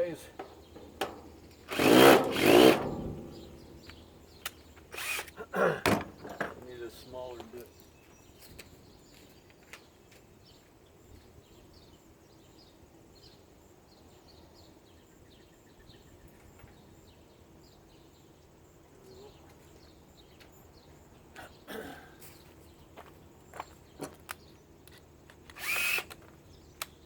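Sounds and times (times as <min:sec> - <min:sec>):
bird chirping: 0:00.0 - 0:05.3.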